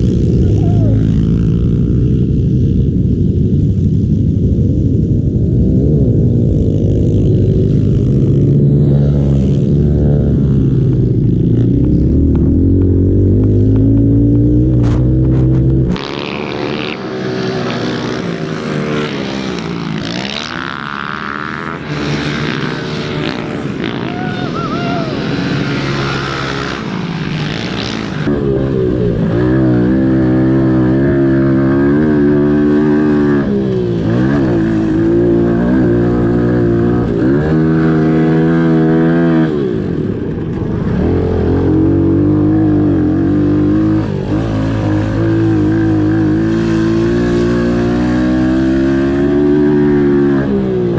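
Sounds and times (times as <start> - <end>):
motorbike engines revving: 0.0 - 50.9.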